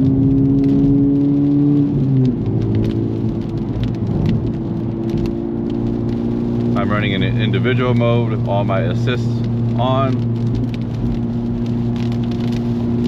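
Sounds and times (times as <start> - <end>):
car engine running: 0.0 - 13.0
raindrops ticking on car: 0.0 - 13.0.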